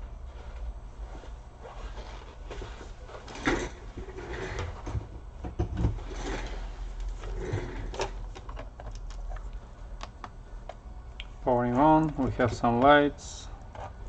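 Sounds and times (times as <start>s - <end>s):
cable handling knocks and rustling: 11.7s - 14.0s.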